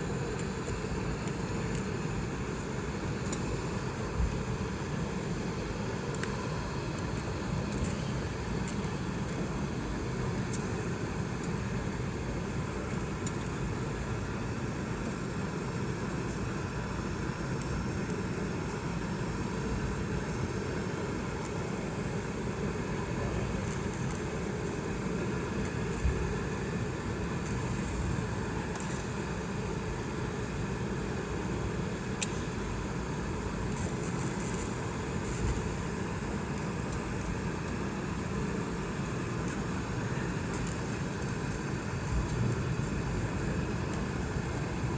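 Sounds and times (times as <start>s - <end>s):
aircraft cabin engine drone: 0.0s - 44.9s.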